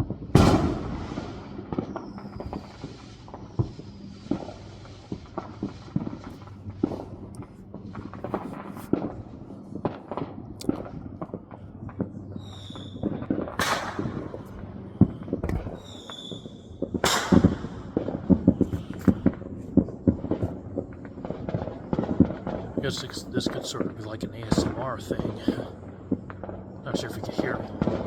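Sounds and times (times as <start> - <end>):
firework whistles: 0.0 - 7.1, 12.4 - 14.5, 15.1 - 20.6
firecracker pops: 0.0 - 9.2, 9.8 - 11.4, 12.5 - 23.2
fireworks popping and crackling: 0.0 - 28.0
loud firework bangs: 0.0 - 28.0.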